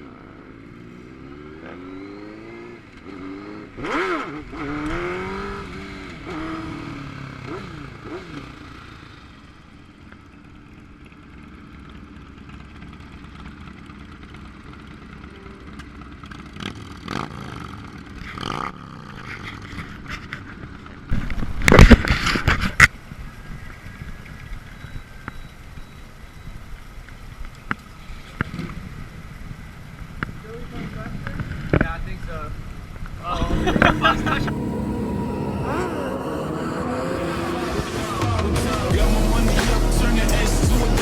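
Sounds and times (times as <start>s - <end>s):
motorcycle engine revving: 0.0s - 10.0s, 11.3s - 20.8s, 33.4s - 41.0s
loud burst of noise: 33.5s - 41.0s.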